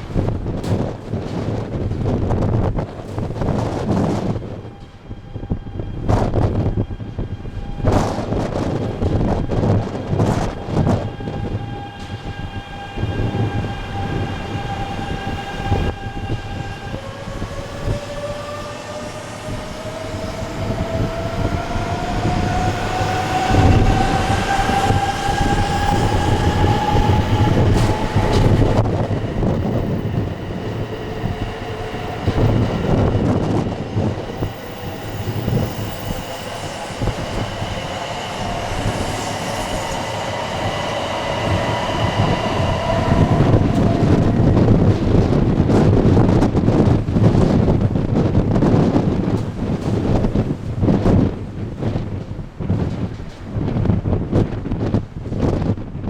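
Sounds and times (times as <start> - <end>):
wheels rumbling: 0.0 - 56.0
wind noise on microphone: 0.0 - 56.0
train motor whine rising: 3.2 - 47.3.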